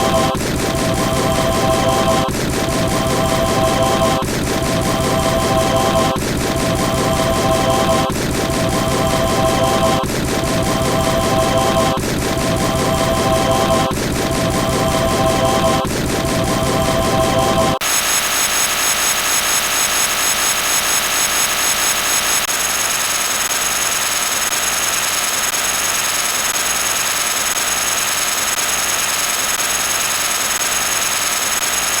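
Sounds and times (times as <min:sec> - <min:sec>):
harsh hiss with high whine: 0:17.8 - 0:22.5.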